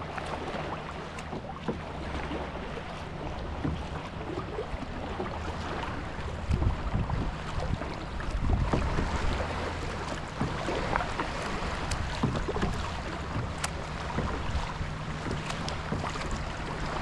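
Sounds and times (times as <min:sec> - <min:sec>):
water splashing and dripping: 0:00.0 - 0:17.0
wind noise on microphone: 0:06.3 - 0:09.6.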